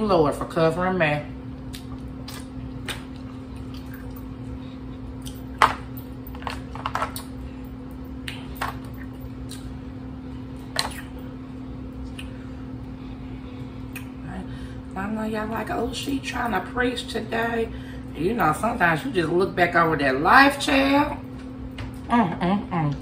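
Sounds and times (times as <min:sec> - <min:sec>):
steady low hum: 0:00.0 - 0:23.0
wet chewing and lip smacks: 0:01.6 - 0:06.2, 0:08.0 - 0:09.8, 0:10.5 - 0:11.3, 0:12.0 - 0:12.4, 0:13.8 - 0:14.2.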